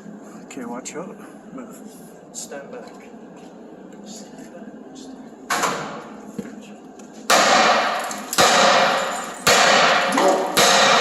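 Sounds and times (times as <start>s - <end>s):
hammer striking steel: 7.3s - 11.0s.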